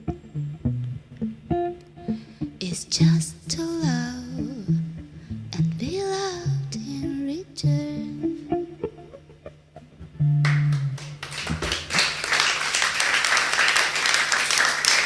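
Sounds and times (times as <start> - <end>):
guitar playing ringing notes: 0.0 - 11.3
audience applause: 10.4 - 15.0.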